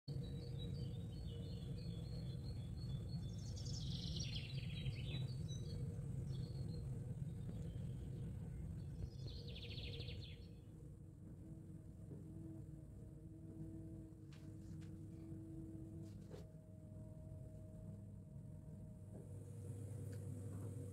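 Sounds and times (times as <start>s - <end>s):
small birds chirping: 0.1s - 10.7s
low background rumble: 0.1s - 20.9s.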